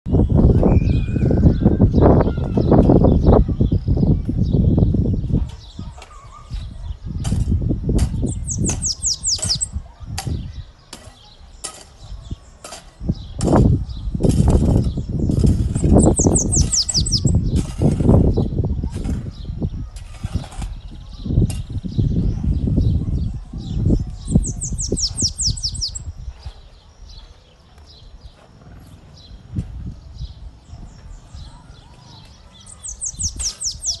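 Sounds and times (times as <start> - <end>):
bird singing high falling notes: 0.1 - 3.3
bird chirping: 0.1 - 7.3, 8.2 - 34.0.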